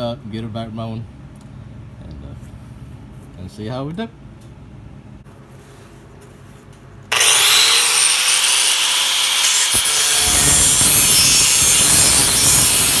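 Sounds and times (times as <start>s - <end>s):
power grinder grinding metal: 7.1s - 13.0s.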